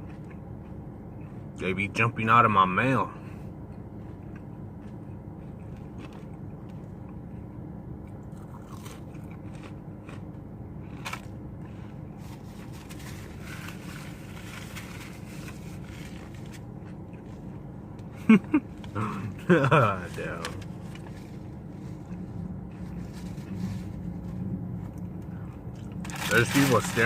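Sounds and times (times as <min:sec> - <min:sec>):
crunchy chewing: 0:00.0 - 0:01.6, 0:03.7 - 0:17.7, 0:20.3 - 0:24.1
low background hum: 0:00.0 - 0:27.0.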